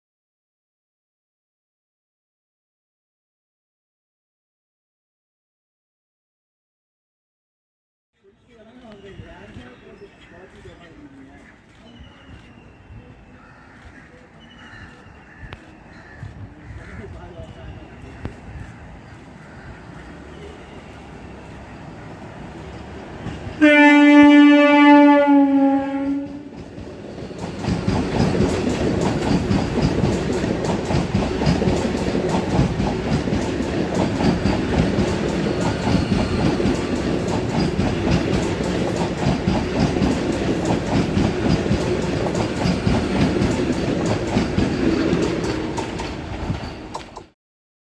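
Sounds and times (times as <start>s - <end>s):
train passing with wheel clatter: 8.4s - 47.4s
train horn: 23.5s - 26.6s.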